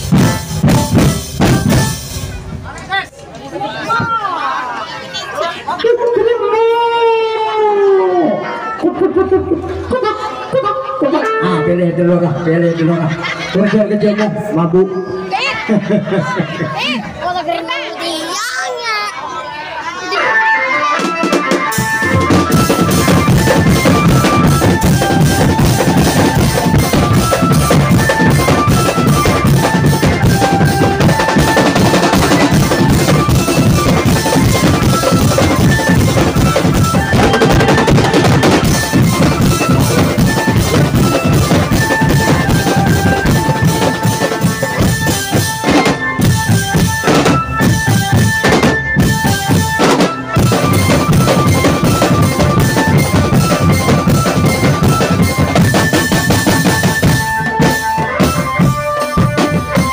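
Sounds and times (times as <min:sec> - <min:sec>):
snare and bass drum: 0:00.0 - 0:02.4, 0:21.3 - 0:59.9
melody of short high notes: 0:20.1 - 0:59.9.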